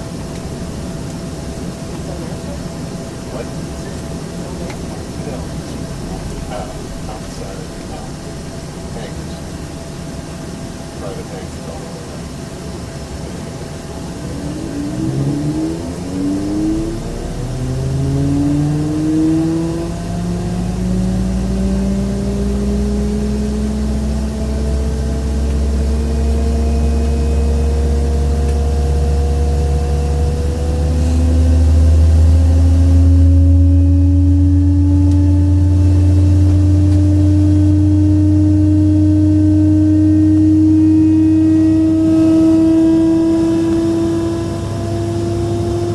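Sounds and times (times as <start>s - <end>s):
jet engine spooling up: 10.9s - 45.9s.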